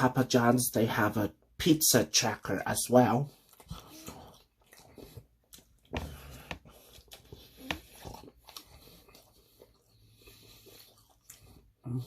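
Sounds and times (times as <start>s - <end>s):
person chewing with wet smacks: 3.2s - 12.0s.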